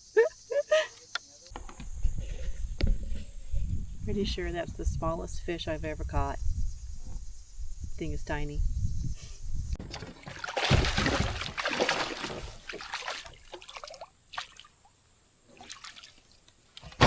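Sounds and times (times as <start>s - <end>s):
water splashing and trickling: 9.8s - 17.0s.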